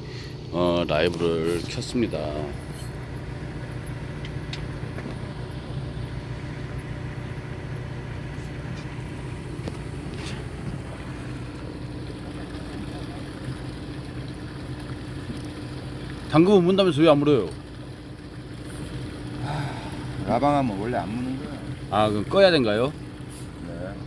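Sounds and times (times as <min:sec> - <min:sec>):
boat engine humming: 0:00.0 - 0:24.0.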